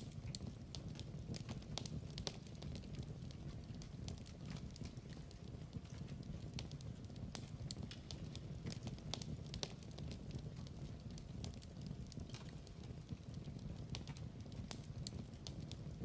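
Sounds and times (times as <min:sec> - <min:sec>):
log fire crackling: 0:00.0 - 0:16.0.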